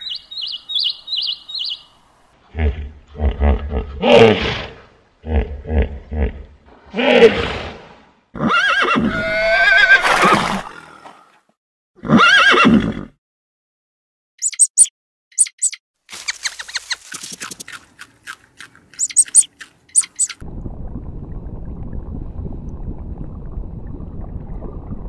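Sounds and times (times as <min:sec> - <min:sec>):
horse whinnying: 0:08.4 - 0:10.7, 0:12.0 - 0:13.1
short high clicks and chirps: 0:14.4 - 0:15.8, 0:18.9 - 0:20.4.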